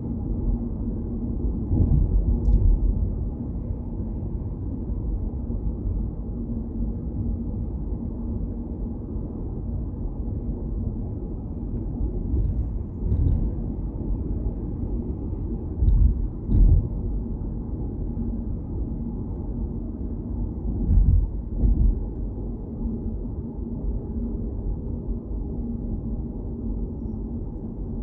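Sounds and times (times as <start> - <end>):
car driving on road rumble: 0.1 - 28.0
low thumps: 15.8 - 17.0.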